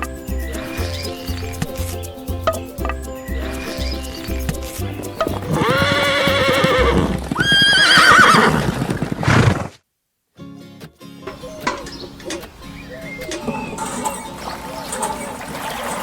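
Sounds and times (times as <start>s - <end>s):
background music: 0.0s - 8.2s, 10.4s - 15.6s
horse whinnying: 5.3s - 9.8s.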